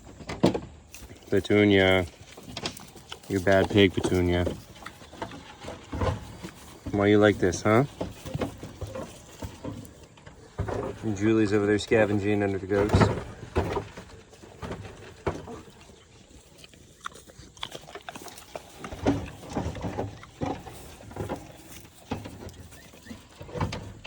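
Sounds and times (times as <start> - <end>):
pigs grunting: 0.9 - 24.0.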